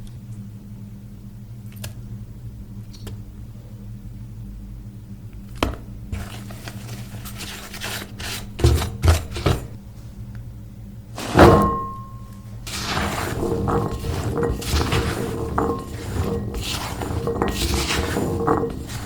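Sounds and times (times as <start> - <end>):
steady low hum: 0.0 - 19.0
loud metallic clang: 11.2 - 14.5.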